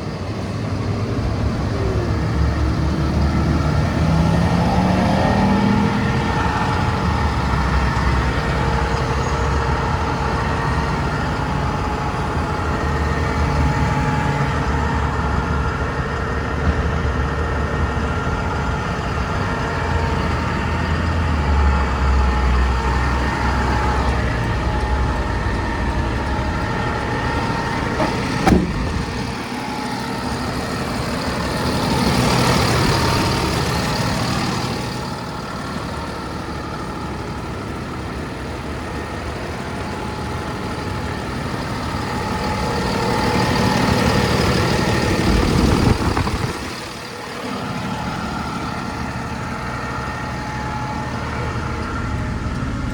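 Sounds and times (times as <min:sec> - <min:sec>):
diesel truck engine running: 0:00.0 - 0:52.9
steady whine: 0:21.8 - 0:32.0.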